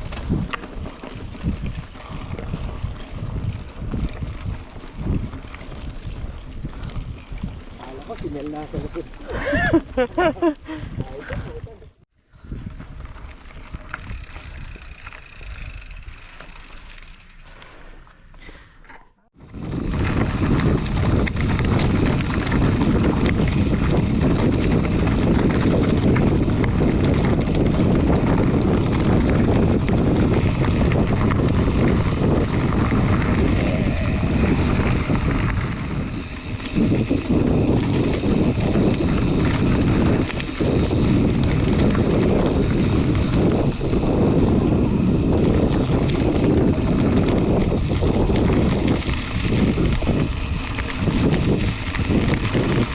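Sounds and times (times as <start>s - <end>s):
wind buffeting microphone: 0.0s - 16.6s, 19.3s - 52.9s
tyre and frame rumble: 12.3s - 52.9s.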